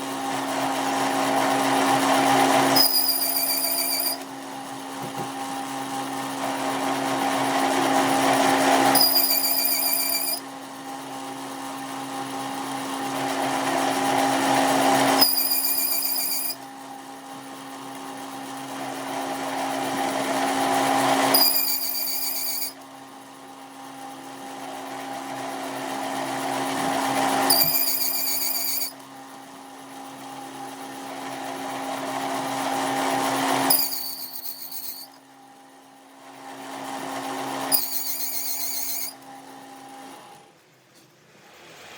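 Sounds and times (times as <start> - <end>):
power tool running: 1.2 - 4.3, 7.6 - 10.4, 13.6 - 16.6, 21.4 - 22.8, 26.7 - 29.0, 33.7 - 35.2, 37.6 - 39.2.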